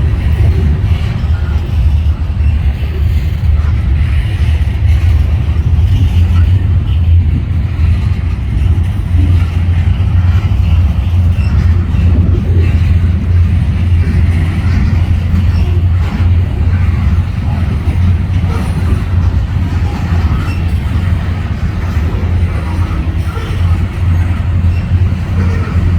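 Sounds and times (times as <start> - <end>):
freight train rumbling past: 0.0 - 25.9.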